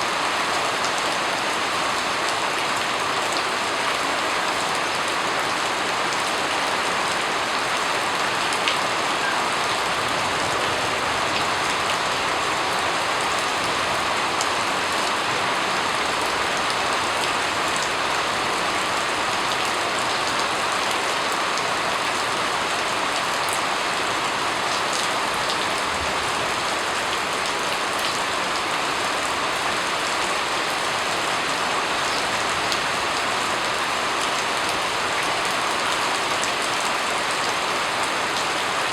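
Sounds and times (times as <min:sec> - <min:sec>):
rain patter on a surface: 0:00.0 - 0:38.9.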